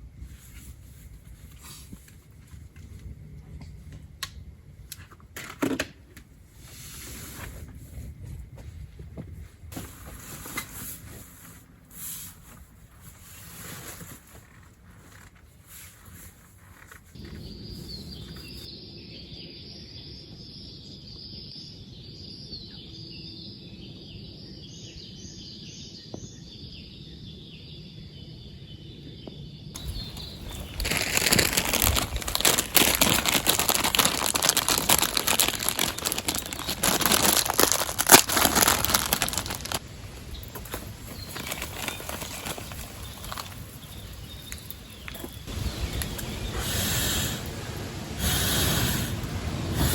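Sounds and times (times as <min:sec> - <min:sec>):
close rustling and crinkling: 0:06.7 - 0:17.5, 0:29.8 - 0:45.6.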